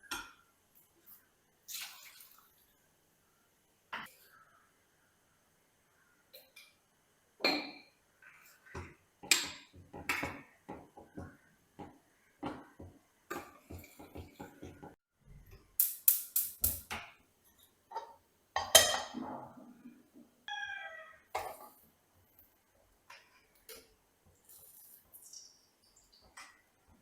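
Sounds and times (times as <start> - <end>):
dishes and utensils clinking: 17.9 - 19.6
kitchenware clatter: 17.9 - 20.1, 21.3 - 21.8.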